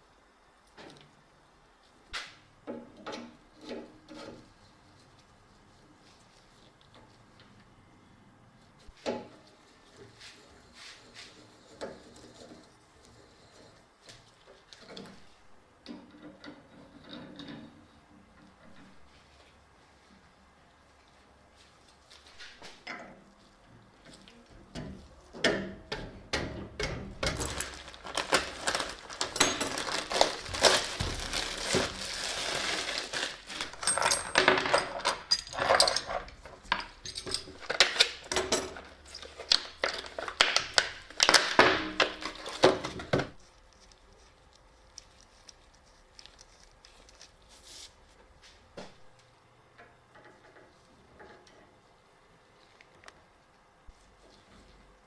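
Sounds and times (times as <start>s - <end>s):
handling clinks and crinkling: 27.2s - 48.3s.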